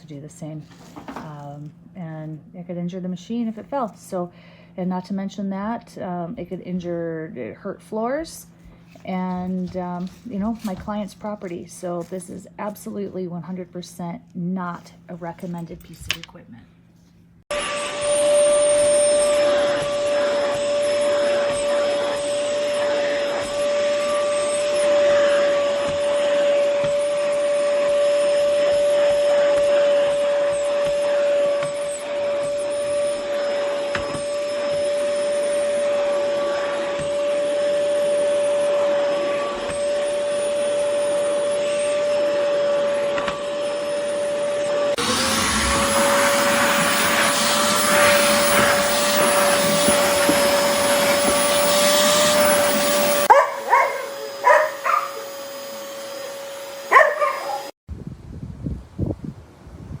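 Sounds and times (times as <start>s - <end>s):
vacuum cleaner motor whine: 17.5s - 57.8s.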